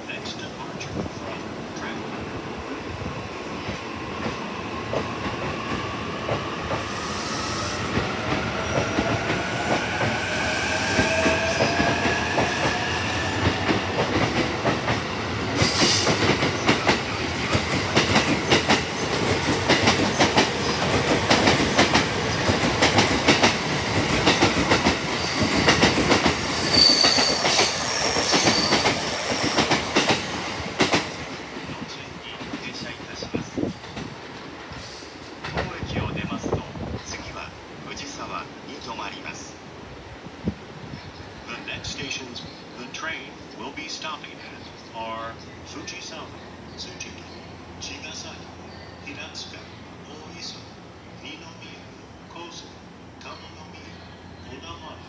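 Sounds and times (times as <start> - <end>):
high wheel squeals: 25.2 - 29.6.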